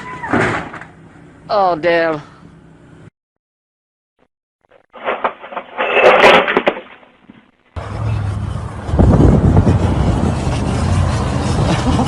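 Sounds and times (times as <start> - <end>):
vehicle engine rumbling: 7.2 - 12.0.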